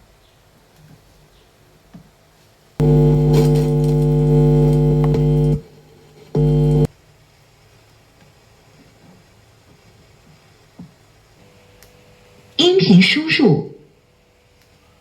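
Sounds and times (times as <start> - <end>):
speaker buzzing tone: 2.8 - 6.9
faint click: 4.7 - 5.3.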